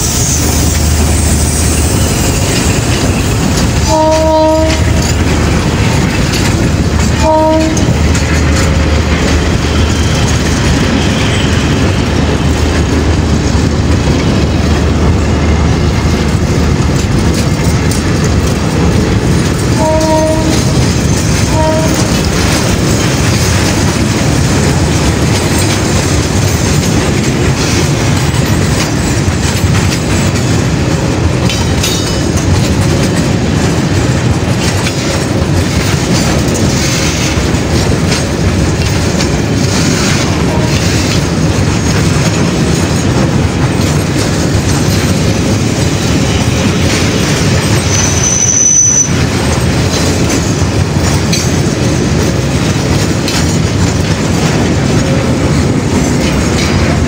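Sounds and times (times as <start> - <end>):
freight train rumbling past: 0.0 - 57.0
wheels clattering on rails: 0.0 - 57.0
train horn blasts: 3.1 - 5.2, 7.1 - 8.0, 19.8 - 20.8, 21.4 - 22.3, 40.3 - 41.0, 47.9 - 49.2.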